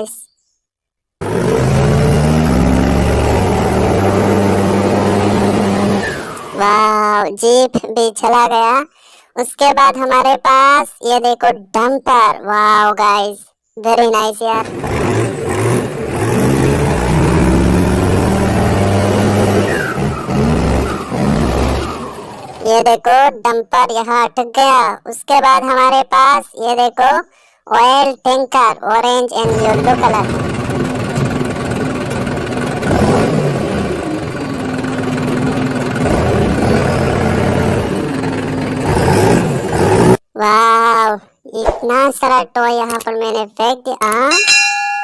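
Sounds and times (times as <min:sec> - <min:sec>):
toy truck engine revving: 0:01.2 - 0:07.2, 0:14.5 - 0:23.0, 0:29.4 - 0:40.2.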